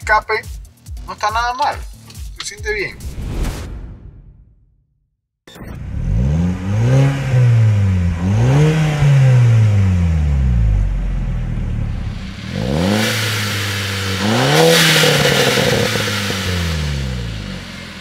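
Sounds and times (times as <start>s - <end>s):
car engine revving: 5.7s - 18.0s.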